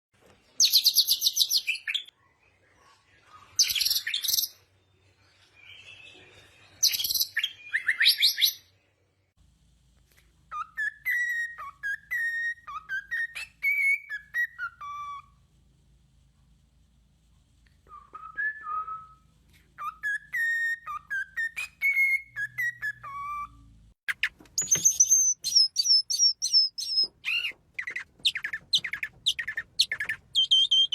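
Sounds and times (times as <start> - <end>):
bird whistled notes and clicks: 24.1 - 30.9
songbird trills: 24.1 - 30.9.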